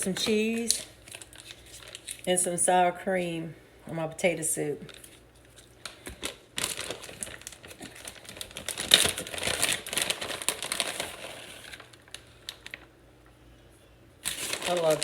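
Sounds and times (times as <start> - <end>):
plastic bag crinkling: 0.0 - 2.4, 4.8 - 12.9, 14.2 - 15.0.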